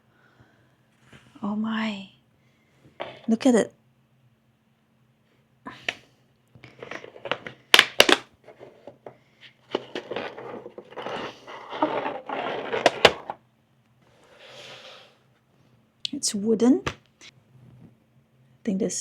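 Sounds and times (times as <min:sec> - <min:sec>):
rubbing and rustling: 0:06.6 - 0:13.4.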